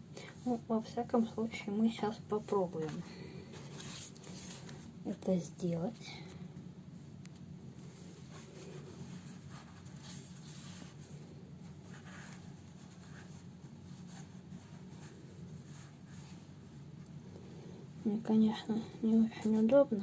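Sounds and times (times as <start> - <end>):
steady low hum: 0.0 - 20.0
fabric scratching and rustling: 0.5 - 5.3, 7.6 - 16.9.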